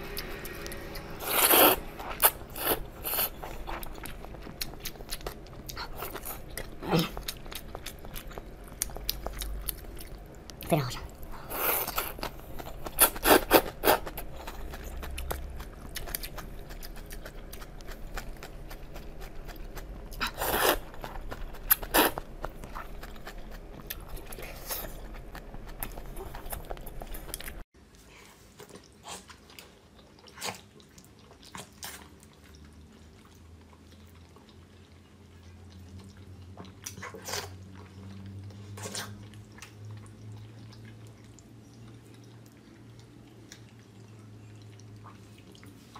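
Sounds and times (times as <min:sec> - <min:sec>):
crunchy chewing: 0:00.1 - 0:27.6.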